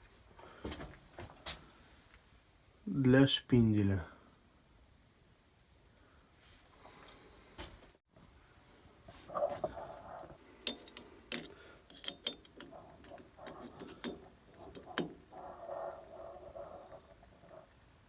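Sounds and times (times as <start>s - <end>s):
metal parts clinking: 10.6s - 15.1s.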